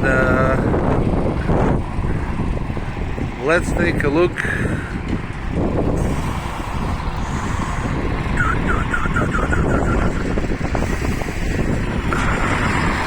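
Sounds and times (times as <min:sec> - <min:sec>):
train rumbling: 0:00.0 - 0:13.0
wind noise on microphone: 0:00.0 - 0:13.0
warbling chirping signal: 0:08.4 - 0:10.4.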